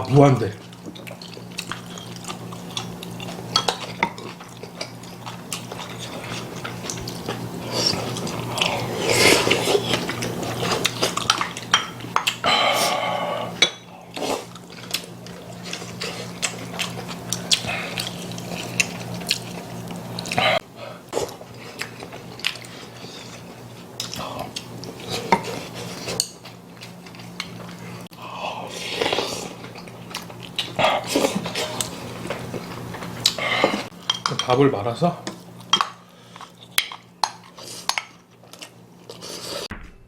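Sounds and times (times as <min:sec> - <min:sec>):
chewing: 0:00.6 - 0:12.4, 0:13.4 - 0:28.1, 0:28.7 - 0:34.0, 0:35.2 - 0:39.7
utensils clinking against bowls: 0:33.6 - 0:34.6.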